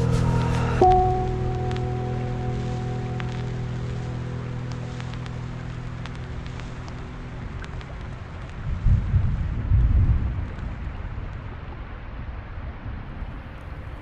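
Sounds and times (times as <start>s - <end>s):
steady rain: 0.0s - 14.0s
deep rumble of thunder: 8.6s - 11.5s.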